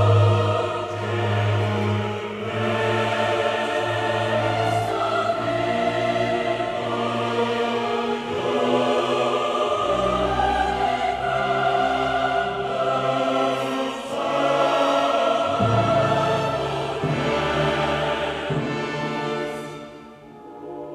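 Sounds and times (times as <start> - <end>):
choir singing sustained chords: 0.0 - 20.9.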